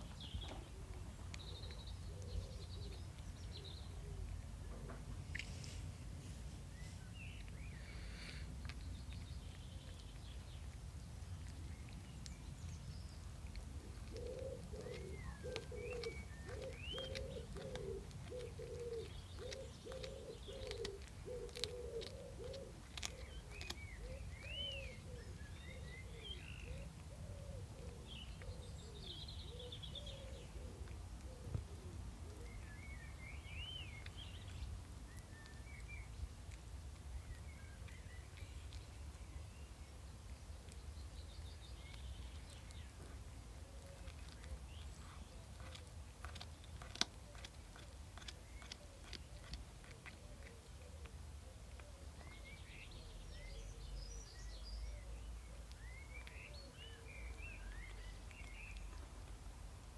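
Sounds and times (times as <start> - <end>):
small birds chirping: 0.0 - 59.9
pigeon cooing: 13.8 - 32.6.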